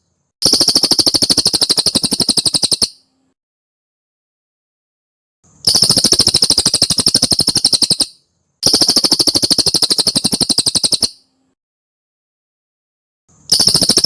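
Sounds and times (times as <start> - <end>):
songbird chattering trill: 0.4 - 3.0, 5.7 - 11.2, 13.5 - 14.0.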